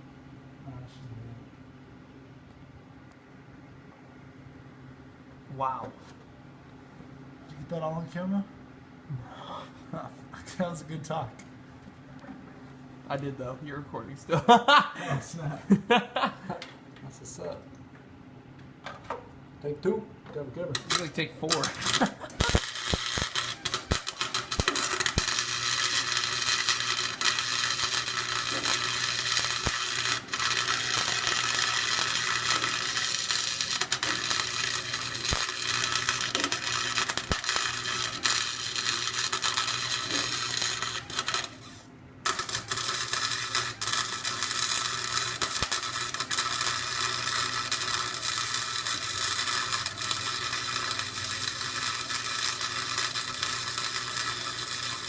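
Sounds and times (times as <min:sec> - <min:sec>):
welding arc crackling: 0:20.7 - 0:55.0.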